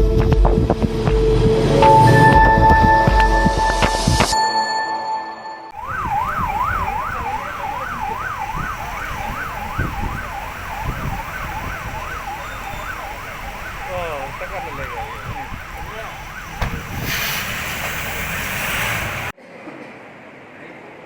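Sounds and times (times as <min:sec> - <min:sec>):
vehicle siren yelping: 0:05.7 - 0:17.1.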